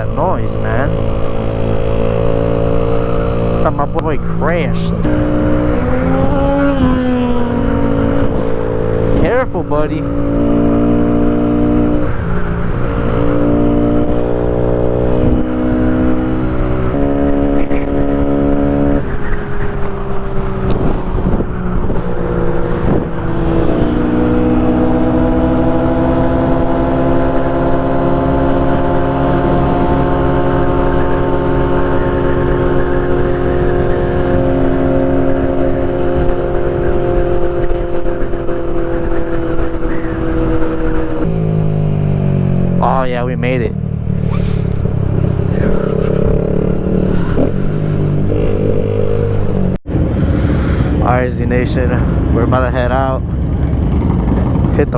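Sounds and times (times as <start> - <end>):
wind rumble: 0.0 - 42.8, 43.6 - 54.9
motorcycle engine shifting gears: 0.0 - 54.9.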